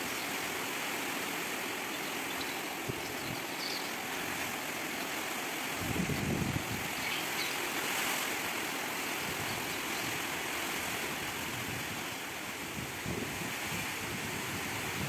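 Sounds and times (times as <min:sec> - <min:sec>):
heavy rain hissing: 0:00.0 - 0:15.0
wind gusts buffeting microphone: 0:05.6 - 0:07.2, 0:09.2 - 0:15.0.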